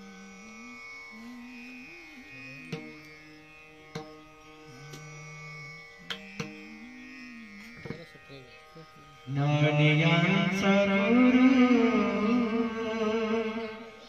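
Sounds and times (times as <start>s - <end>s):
low voice singing slow melody: 0.0s - 3.5s, 4.7s - 7.7s, 9.3s - 14.0s
steady held drone: 0.0s - 14.0s.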